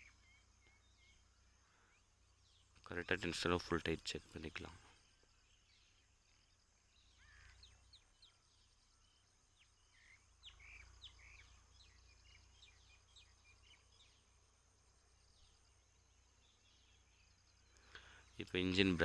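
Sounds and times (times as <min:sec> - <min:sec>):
faint bird chirps: 0:00.0 - 0:19.0.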